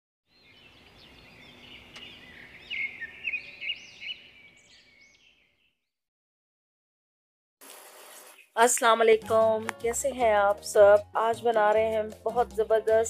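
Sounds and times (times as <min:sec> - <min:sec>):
birds chirping and twittering: 0:00.3 - 0:05.9.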